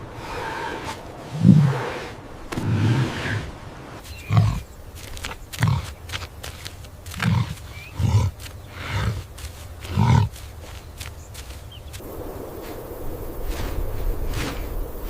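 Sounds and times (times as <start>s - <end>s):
animal low grunting calls: 0.0s - 6.0s, 7.1s - 10.4s.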